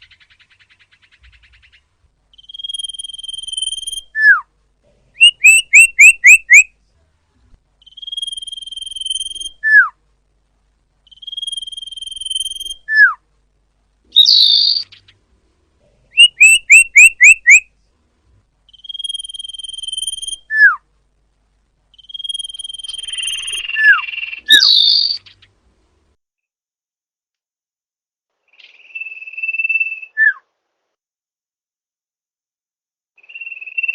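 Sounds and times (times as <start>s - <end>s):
bird song whistles: 0.0s - 4.5s, 5.2s - 6.7s, 7.8s - 10.0s, 11.1s - 13.2s, 14.1s - 15.2s, 16.1s - 17.7s, 18.7s - 20.8s, 21.9s - 25.4s, 28.5s - 30.4s, 33.2s - 33.9s
harsh bird chatter: 22.0s - 25.5s.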